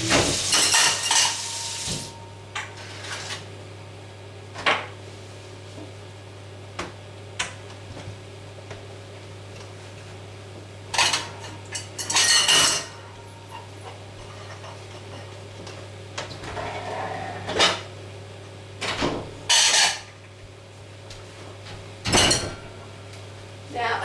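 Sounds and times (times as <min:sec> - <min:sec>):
dishes and utensils clattering: 0:00.0 - 0:03.3, 0:11.0 - 0:15.3, 0:18.8 - 0:20.1, 0:22.1 - 0:22.8
steady electrical hum: 0:00.0 - 0:04.5.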